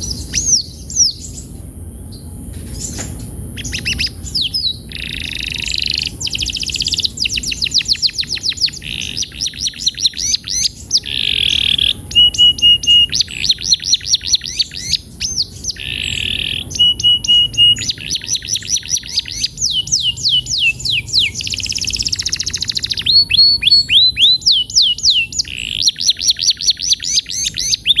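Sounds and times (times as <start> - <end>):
canary singing: 0.0 - 28.0.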